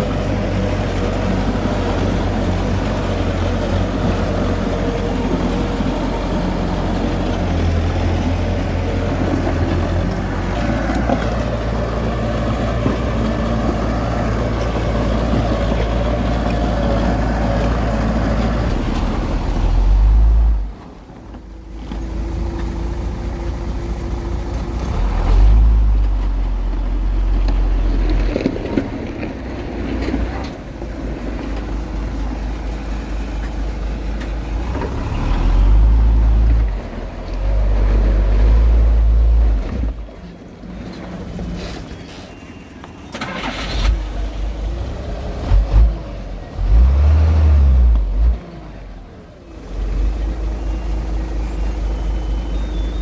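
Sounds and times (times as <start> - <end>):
heavy diesel engine revving: 0.0 - 20.8, 22.9 - 26.6, 34.4 - 40.0, 43.2 - 53.0.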